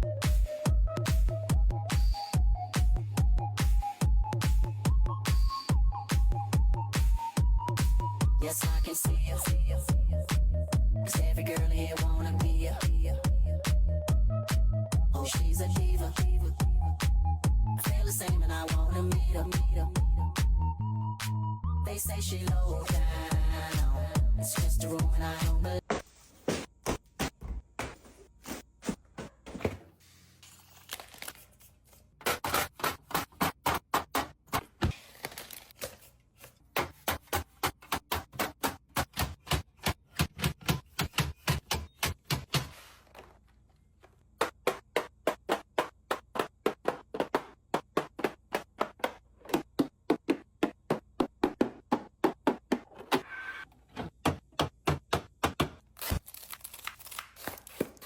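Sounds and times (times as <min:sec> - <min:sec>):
packaging rustling: 0:29.3 - 0:32.1, 0:34.9 - 0:36.6, 0:56.0 - 0:58.0.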